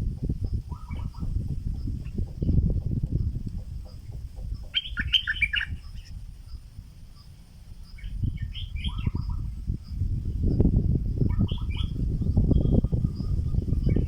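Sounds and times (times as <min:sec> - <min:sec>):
bird chirpy song: 0:00.0 - 0:14.0
faint high whine: 0:04.4 - 0:14.0.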